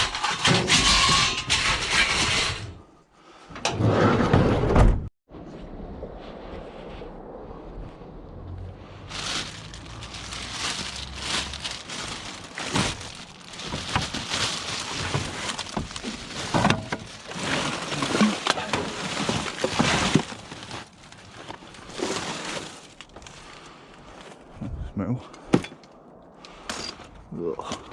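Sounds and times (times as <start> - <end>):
rummaging through rubbish: 9.1 - 24.4.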